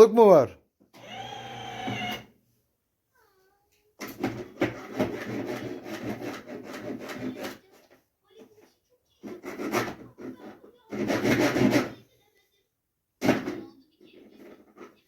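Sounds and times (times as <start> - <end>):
toy saw scraping toy car: 1.0 - 2.3, 4.2 - 8.0, 9.1 - 12.0, 14.2 - 15.0.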